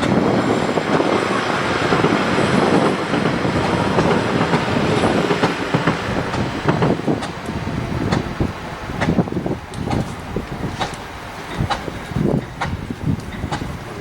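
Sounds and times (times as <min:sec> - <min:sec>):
diesel locomotive engine running: 0:00.0 - 0:14.0.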